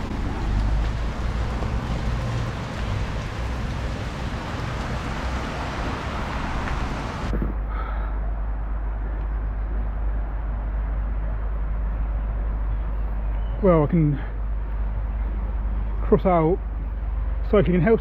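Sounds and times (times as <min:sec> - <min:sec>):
rain and hail hiss: 0:00.0 - 0:07.3
wind rumbling on microphone: 0:00.0 - 0:07.7.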